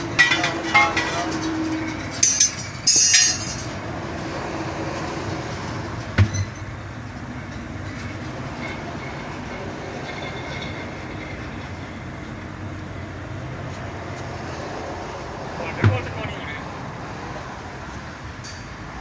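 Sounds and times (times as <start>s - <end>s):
metallic clank: 0.0s - 3.8s, 18.4s - 18.8s.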